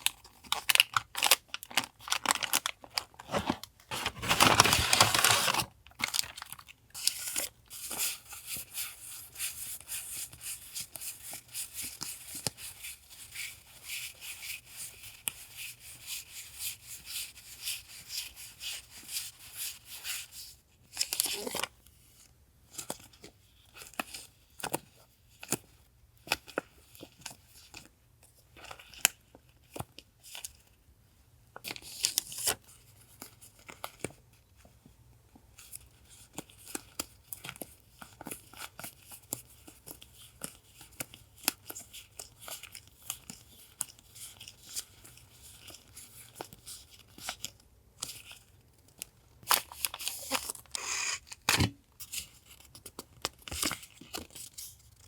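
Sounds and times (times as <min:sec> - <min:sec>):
packaging crinkling and rustling: 0:00.0 - 0:08.1, 0:35.7 - 0:55.0.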